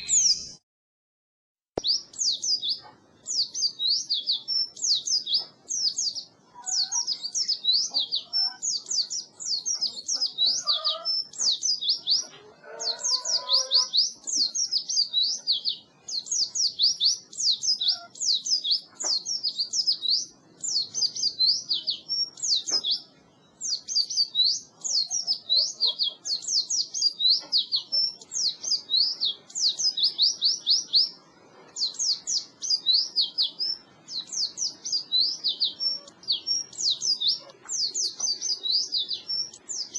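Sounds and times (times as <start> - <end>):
bird twittering song: 0.0 - 0.6, 1.8 - 39.9.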